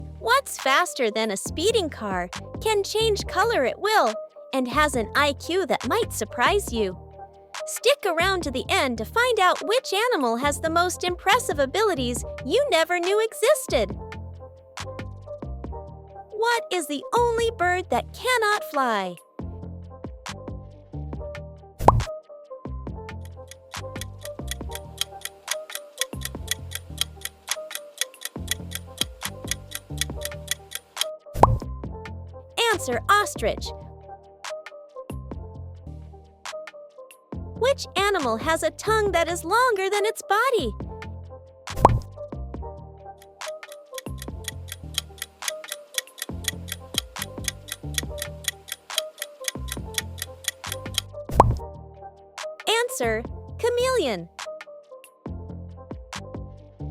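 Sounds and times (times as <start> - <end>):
electronic background music: 0.0 - 56.9
countdown timer ticking: 23.2 - 31.6, 43.2 - 51.6.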